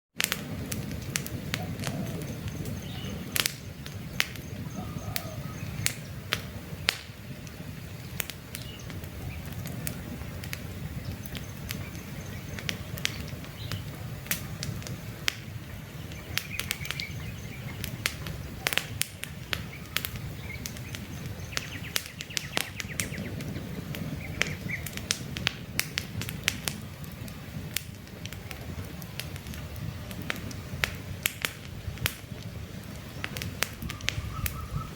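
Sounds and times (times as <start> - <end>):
campfire crackling and popping: 0.2 - 34.9
faint bird chirps: 1.6 - 3.3, 4.1 - 6.2, 33.8 - 34.9.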